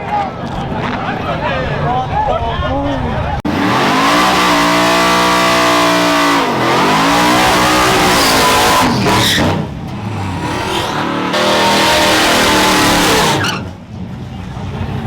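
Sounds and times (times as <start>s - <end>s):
truck engine at high revs: 3.4s - 15.0s.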